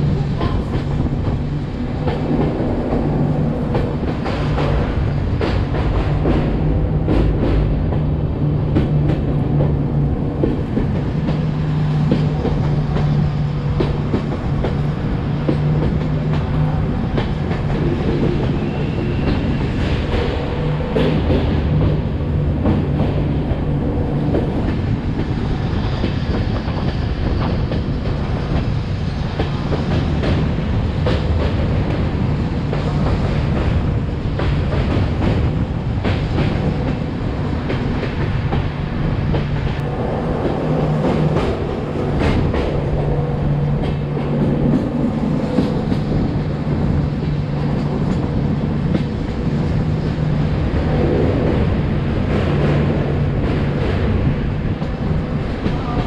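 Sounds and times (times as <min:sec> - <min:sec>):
train coaches rumbling: 0:00.0 - 0:56.0.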